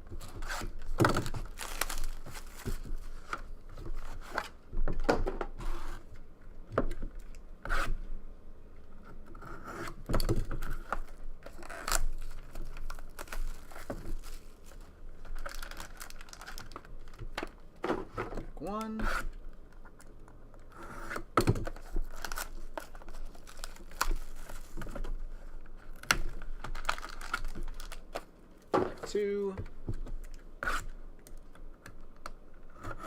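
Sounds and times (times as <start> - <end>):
plastic wrap tearing and crinkling: 0.2 - 3.2, 10.6 - 17.4, 21.6 - 28.7.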